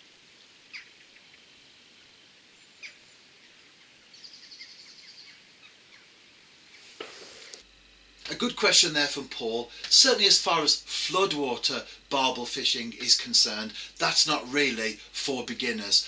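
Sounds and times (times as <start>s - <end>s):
steady outdoor hiss: 0.0s - 16.0s
birdsong: 0.4s - 6.9s.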